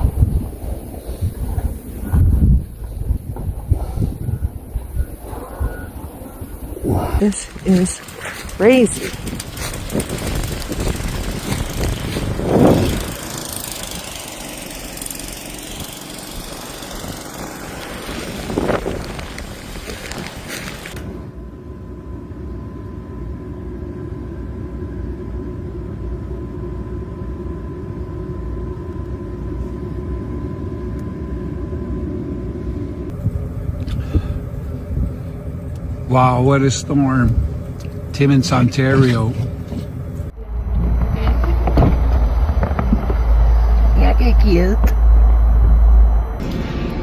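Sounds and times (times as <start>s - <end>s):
storm wind rushing: 0.0s - 13.9s, 15.8s - 21.2s, 33.1s - 47.0s
vehicle engine rumble: 0.0s - 21.6s, 27.9s - 47.0s
faint whine: 0.0s - 47.0s.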